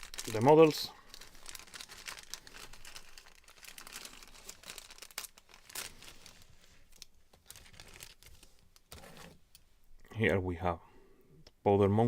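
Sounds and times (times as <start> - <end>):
packaging crinkling and rustling: 0.0 - 9.5.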